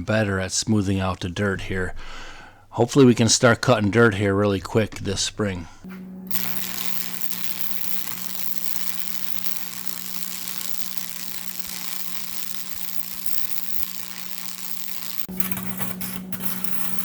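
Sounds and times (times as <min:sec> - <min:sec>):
low electrical hum: 0:05.0 - 0:17.0
welding arc crackling: 0:06.2 - 0:17.0.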